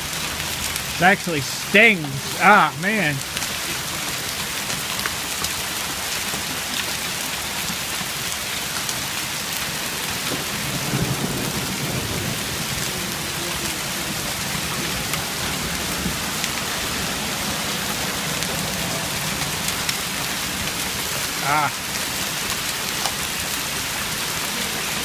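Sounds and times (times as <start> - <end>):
hailstones ticking: 0.0 - 24.6
rain and hail hissing: 0.0 - 25.0
low rumble of thunder: 10.3 - 13.7.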